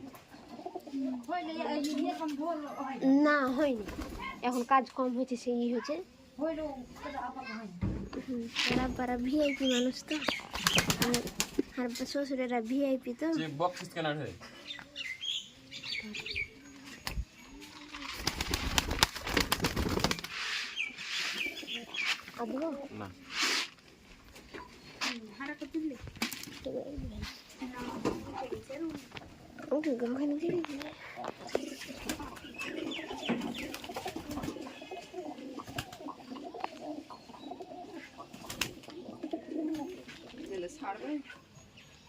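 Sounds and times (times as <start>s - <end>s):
pigeons cooing: 0.0s - 2.2s, 14.5s - 23.4s, 26.7s - 41.6s
small birds chirping: 0.0s - 42.0s
rustling and clatter: 17.6s - 21.3s.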